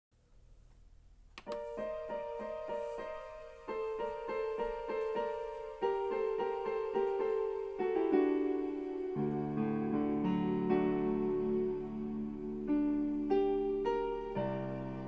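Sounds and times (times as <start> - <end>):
faint hiss: 0.2 - 15.0
click: 0.7 - 1.8
digital piano chords: 1.4 - 15.0.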